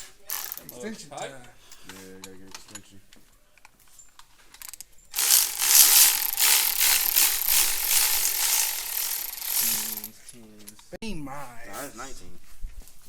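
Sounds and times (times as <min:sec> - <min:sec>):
ratchet wrench clattering: 0:00.0 - 0:00.8, 0:04.6 - 0:10.1.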